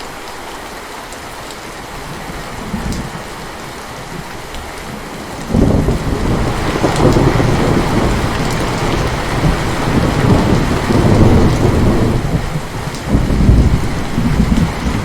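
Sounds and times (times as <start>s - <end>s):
heavy rain falling: 0.0s - 15.0s
rolling thunder rumble: 4.1s - 15.0s.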